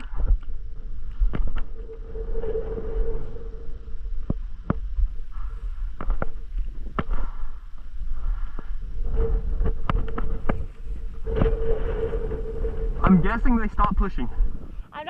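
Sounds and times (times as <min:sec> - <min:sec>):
wind buffeting microphone: 0:00.0 - 0:14.9.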